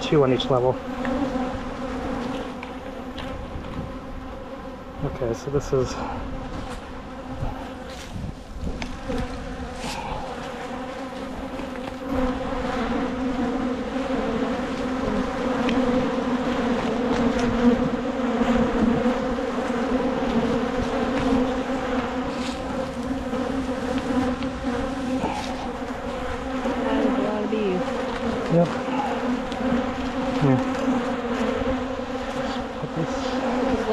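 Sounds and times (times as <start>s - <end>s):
honeybees buzzing: 0.0s - 33.9s.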